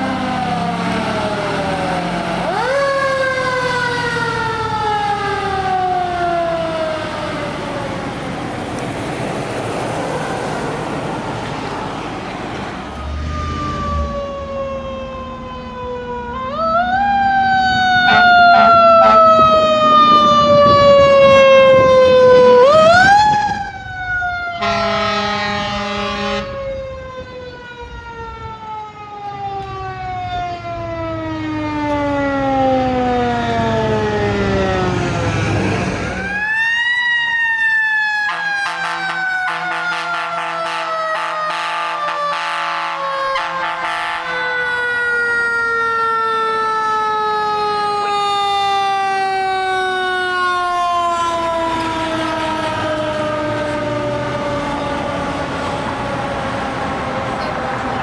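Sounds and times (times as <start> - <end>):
fire truck siren wailing: 0.0 - 58.0
horn blast: 17.9 - 23.7, 24.6 - 26.7, 38.3 - 44.6.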